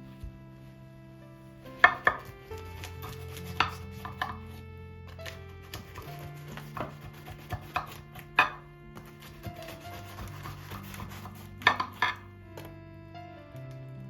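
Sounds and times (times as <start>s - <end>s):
knife chopping on cutting board: 1.8s - 4.4s, 5.6s - 12.2s.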